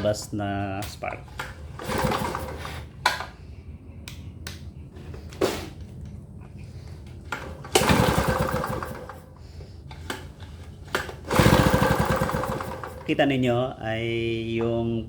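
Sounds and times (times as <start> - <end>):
recoil starter pull: 1.4 - 3.2, 7.3 - 9.3, 10.0 - 13.2
engine cranking with fast ticking: 1.7 - 2.8, 7.6 - 9.3, 11.1 - 13.2.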